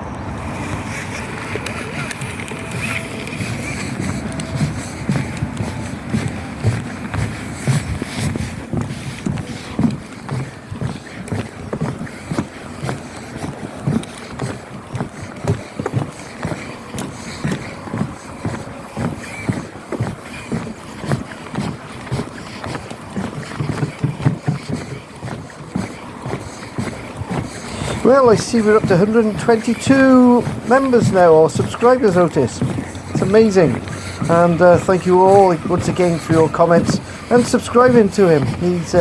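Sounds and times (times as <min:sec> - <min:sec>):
footsteps on floating pontoon: 0:00.0 - 0:39.0.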